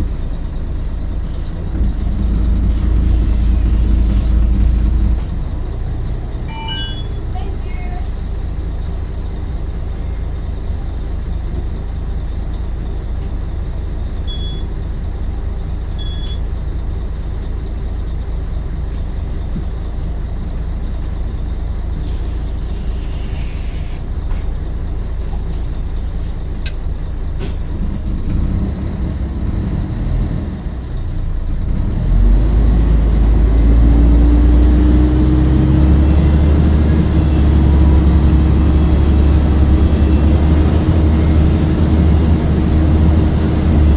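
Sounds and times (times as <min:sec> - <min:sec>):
bus diesel engine running: 0:00.0 - 0:43.9
rising engine whine: 0:32.0 - 0:43.9.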